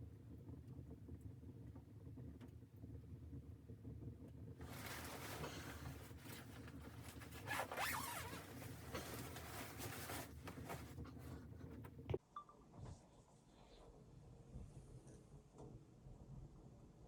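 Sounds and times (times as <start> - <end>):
zipper rasping: 4.6 - 11.4.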